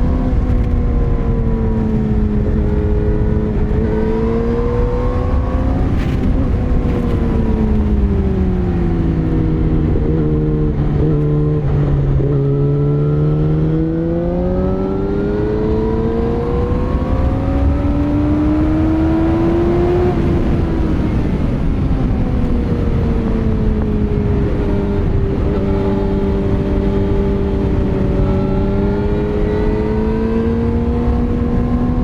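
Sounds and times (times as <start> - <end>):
motorcycle engine revving: 0.0 - 32.0
wind rush: 0.0 - 32.0.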